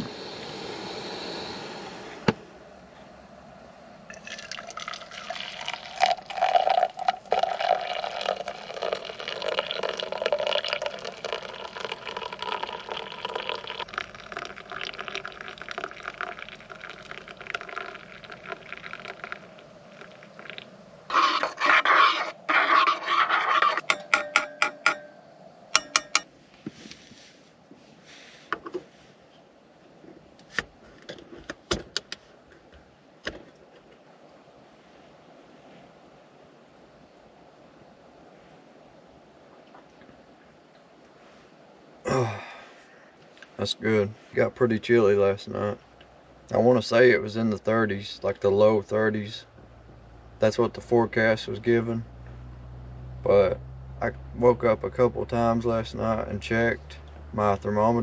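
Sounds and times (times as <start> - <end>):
liquid pouring into a mug: 4.1 - 21.9.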